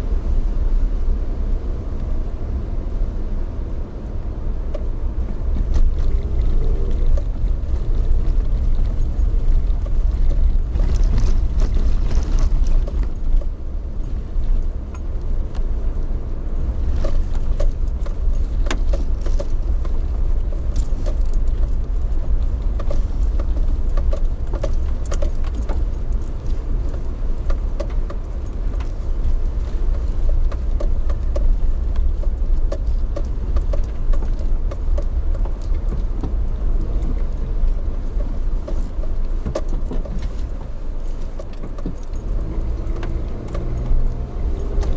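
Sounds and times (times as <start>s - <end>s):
vehicle interior rumble: 0.0s - 44.9s
light rattling and clicks: 16.8s - 44.9s.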